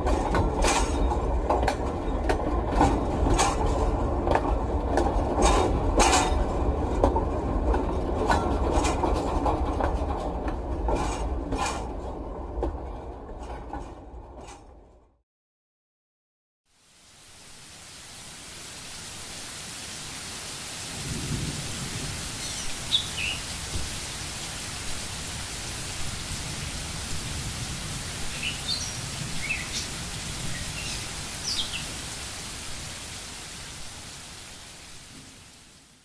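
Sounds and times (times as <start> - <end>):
steady rain: 0.0 - 14.8, 16.7 - 36.0
thunder rumbling: 0.0 - 14.8, 20.9 - 24.1.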